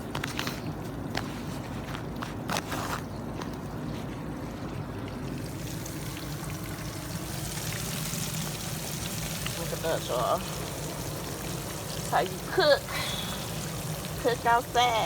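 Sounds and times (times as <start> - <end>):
fish sizzling in hot grease: 5.4 - 15.0.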